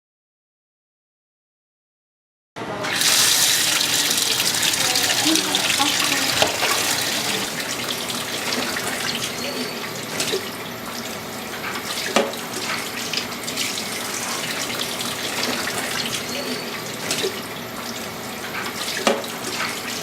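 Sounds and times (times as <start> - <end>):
tap water running into sink: 2.8 - 20.0
dishes clinking: 3.6 - 7.6.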